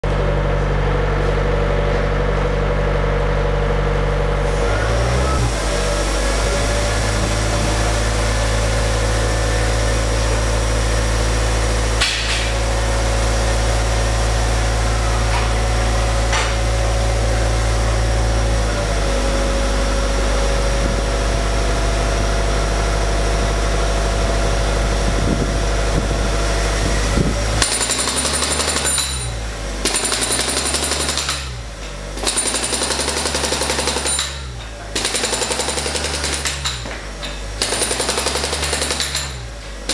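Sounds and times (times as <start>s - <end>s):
machine drone: 0.0s - 39.9s
pneumatic hammer chipping concrete: 4.7s - 13.0s, 27.3s - 39.9s.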